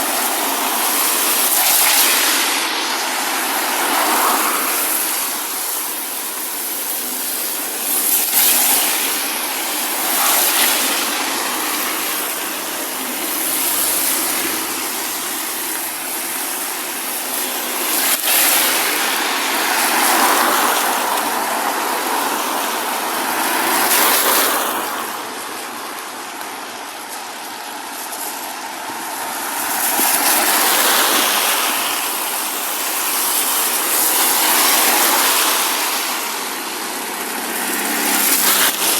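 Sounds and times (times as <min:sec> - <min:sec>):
steady rain: 0:00.0 - 0:38.9
tyre hiss of passing cars: 0:00.0 - 0:38.9.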